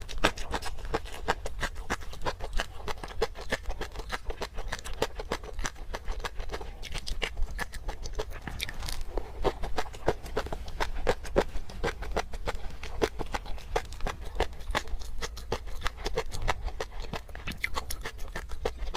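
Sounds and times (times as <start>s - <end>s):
chewing mouth clicks and smacks: 0.0s - 18.9s.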